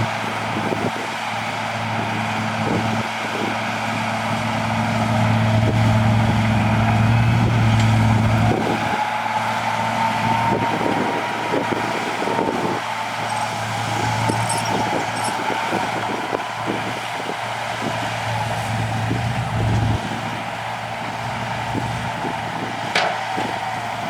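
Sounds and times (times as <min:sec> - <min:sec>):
heavy machinery diesel engine hum: 0:00.0 - 0:24.0
rising whine: 0:04.2 - 0:22.9
clanks and knocks: 0:22.9 - 0:23.5.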